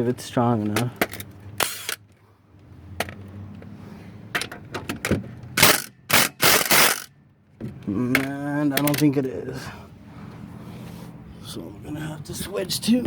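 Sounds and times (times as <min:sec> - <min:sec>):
impact wrench hammering: 0:05.6 - 0:07.1.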